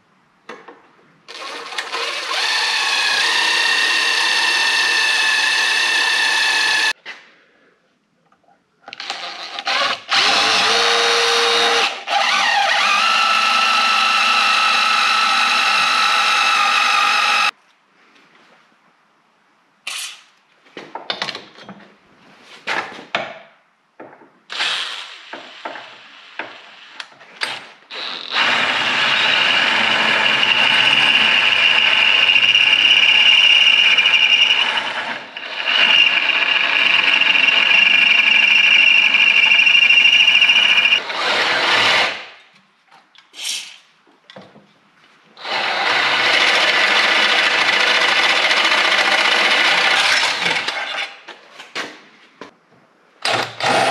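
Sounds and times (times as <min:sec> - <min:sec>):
electric drill whining: 0:01.3 - 0:06.9, 0:09.0 - 0:17.5, 0:27.9 - 0:42.1.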